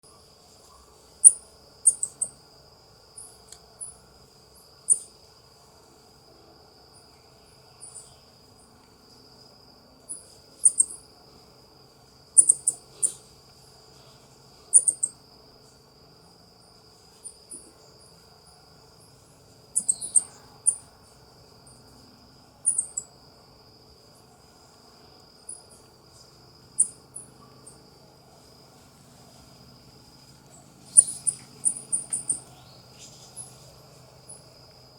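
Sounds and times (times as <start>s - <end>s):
high insect drone: 0.1s - 34.9s
coati chirping: 1.2s - 2.4s, 4.8s - 5.1s, 10.1s - 11.0s, 12.4s - 13.3s, 14.7s - 15.2s, 19.8s - 20.8s, 22.6s - 23.1s, 26.8s - 27.8s, 30.5s - 33.7s.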